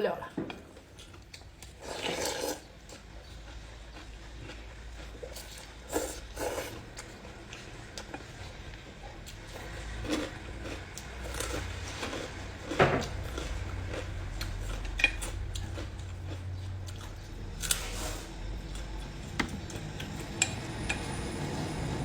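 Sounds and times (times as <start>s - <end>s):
steady low hum: 4.6s - 22.0s.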